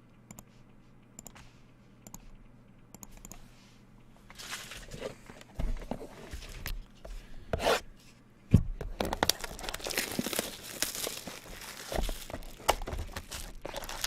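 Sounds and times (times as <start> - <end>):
plastic wrapping tearing and crinkling: 9.1 - 14.0.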